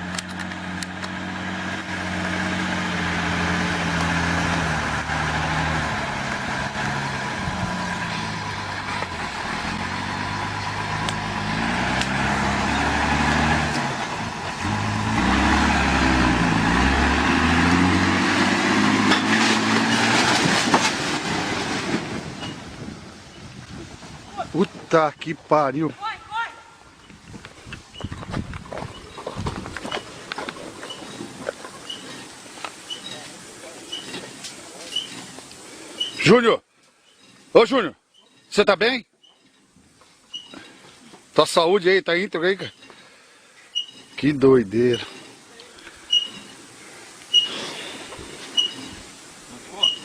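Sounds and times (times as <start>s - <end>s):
truck engine running under load: 0.0s - 23.2s.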